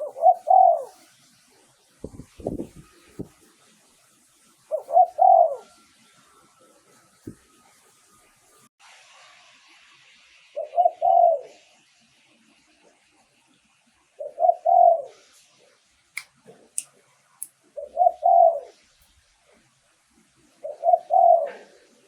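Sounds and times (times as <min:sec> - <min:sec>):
dove cooing: 0:00.0 - 0:01.0, 0:04.7 - 0:05.8, 0:10.6 - 0:11.6, 0:14.2 - 0:15.2, 0:17.8 - 0:18.8, 0:20.6 - 0:22.0.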